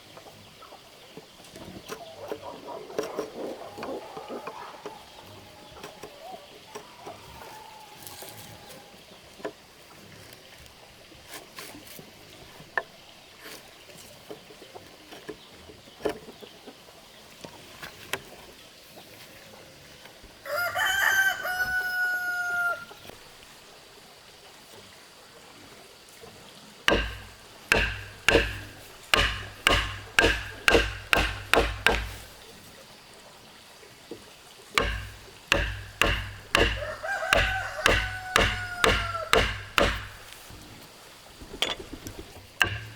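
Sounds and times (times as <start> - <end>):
rooster crowing: 20.4 - 22.9, 36.8 - 39.3
tool striking wood: 26.9 - 32.4, 34.8 - 40.4, 42.6 - 42.9.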